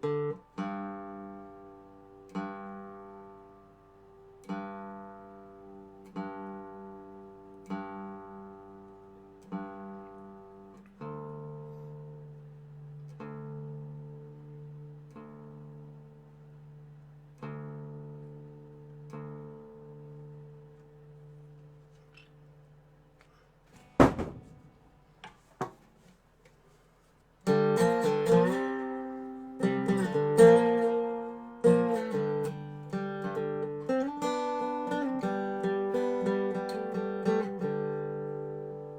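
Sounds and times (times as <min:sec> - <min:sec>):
sharp knocks: 0:23.8 - 0:25.0
resonator guitar chords ringing: 0:27.5 - 0:38.9.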